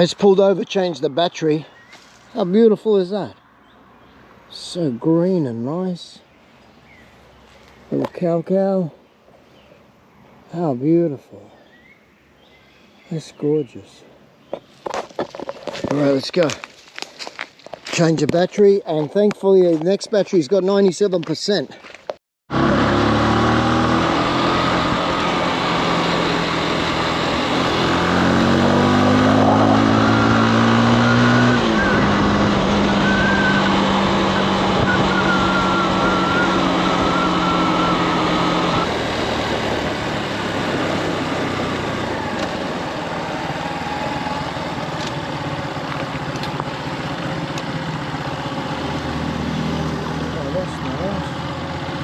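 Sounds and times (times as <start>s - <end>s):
motorcycle engine accelerating: 22.5s - 52.0s.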